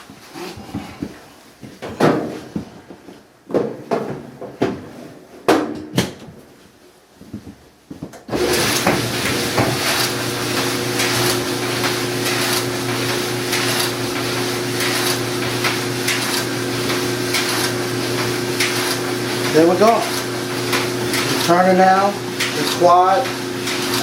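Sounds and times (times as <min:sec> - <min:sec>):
clothes dryer running: 0:08.1 - 0:24.0.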